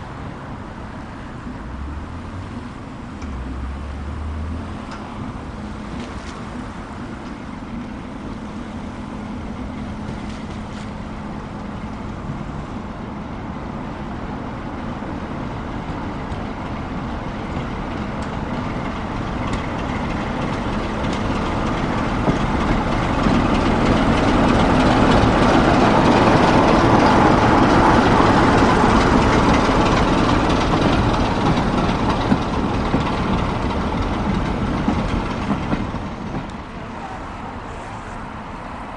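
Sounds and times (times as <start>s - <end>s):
train passing: 0.0s - 38.9s.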